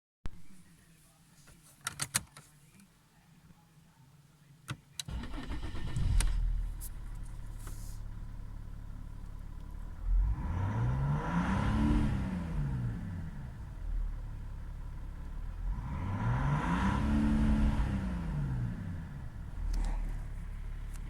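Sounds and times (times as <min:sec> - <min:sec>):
diesel engine idling: 0:05.1 - 0:10.6, 0:18.6 - 0:21.0
diesel engine revving: 0:05.1 - 0:21.0.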